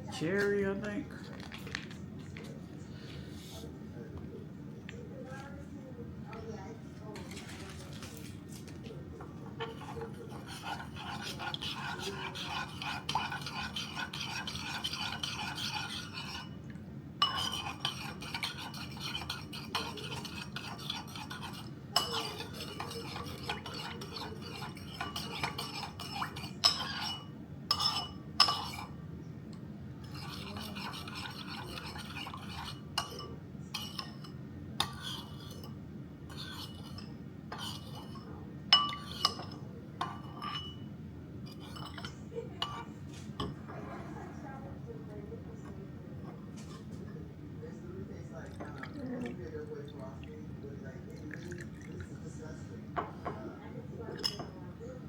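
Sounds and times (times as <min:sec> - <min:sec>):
spoon stirring in juice: 0:07.1 - 0:55.0
spoon clinking against container: 0:17.2 - 0:28.9, 0:36.4 - 0:40.9, 0:54.2 - 0:54.6.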